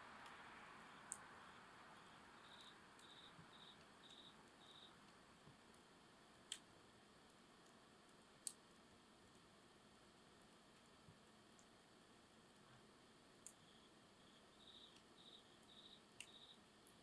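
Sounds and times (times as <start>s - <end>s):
campfire hissing: 0.0s - 17.0s.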